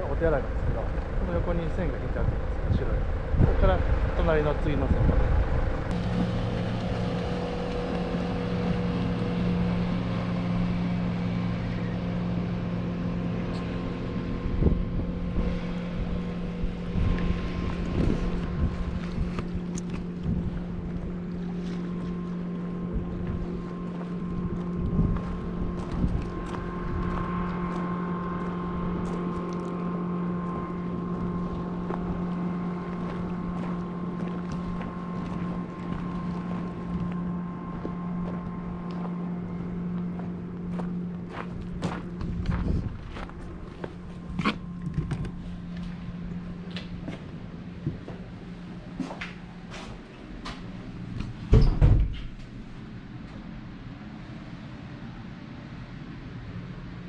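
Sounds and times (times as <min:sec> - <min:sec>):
engine idling: 0:00.0 - 0:55.2
wind on microphone: 0:00.4 - 0:11.0, 0:13.5 - 0:38.9, 0:41.4 - 0:46.3.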